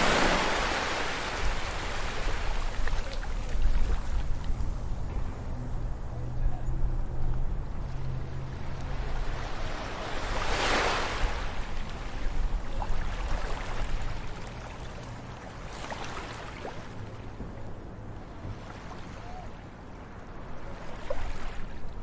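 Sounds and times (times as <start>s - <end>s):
ocean waves breaking: 0.0s - 6.2s, 6.8s - 22.0s
low surf rumble: 0.0s - 15.6s.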